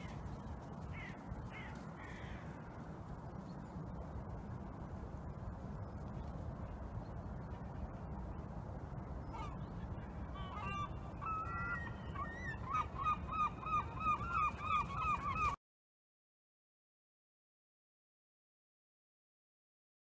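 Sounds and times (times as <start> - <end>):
steady low rumble: 0.0 - 11.4.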